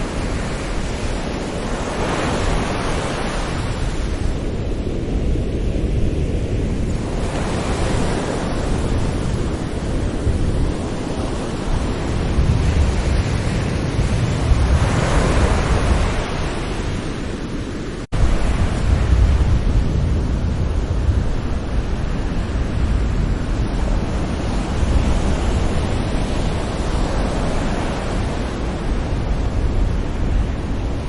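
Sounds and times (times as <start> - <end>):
sea waves breaking on shore: 0.0 - 31.0.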